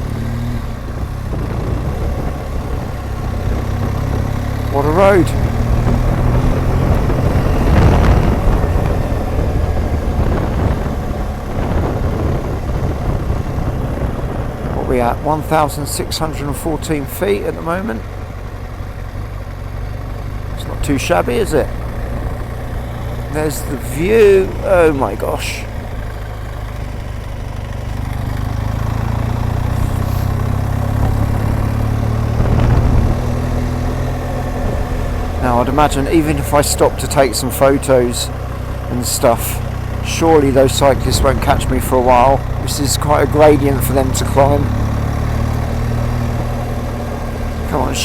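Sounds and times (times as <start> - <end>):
motorcycle engine running: 0.0 - 48.0
wind buffeting microphone: 0.6 - 4.6, 5.3 - 17.1, 27.9 - 36.0.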